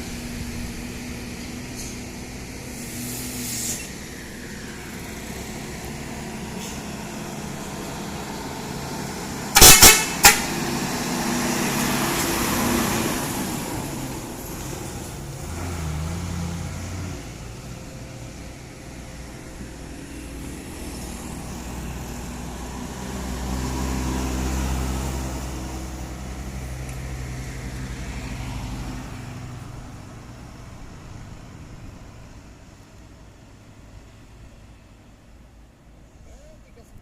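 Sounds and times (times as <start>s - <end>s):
truck diesel engine labouring: 0.0s - 33.9s.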